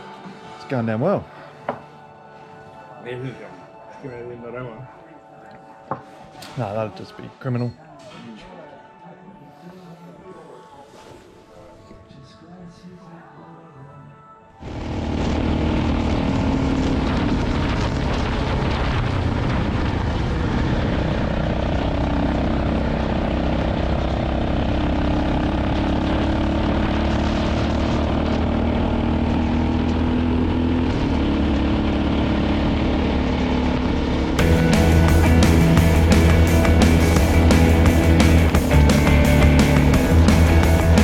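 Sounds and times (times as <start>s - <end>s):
motorcycle engine running: 14.6s - 41.0s.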